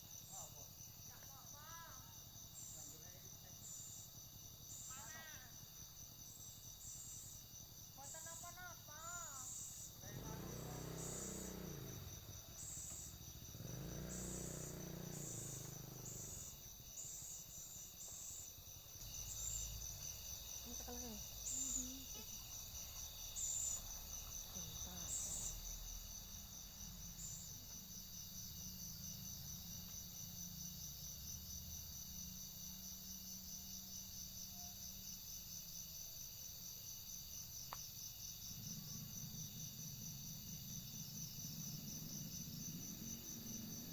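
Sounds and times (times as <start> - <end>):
insects trilling: 0.0 - 43.9.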